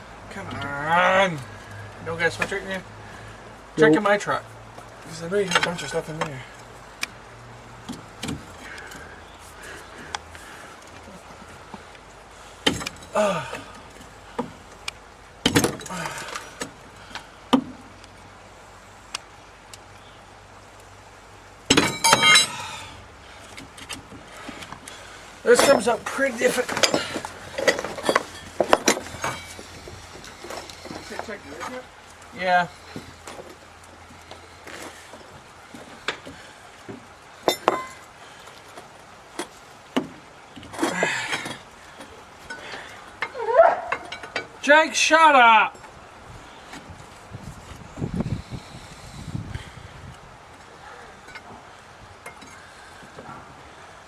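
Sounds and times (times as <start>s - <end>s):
metal tools clanking: 5.1s - 6.4s, 21.7s - 22.9s, 25.4s - 31.9s, 37.4s - 38.1s, 40.5s - 44.6s
metal scraping and rattling: 21.7s - 36.5s.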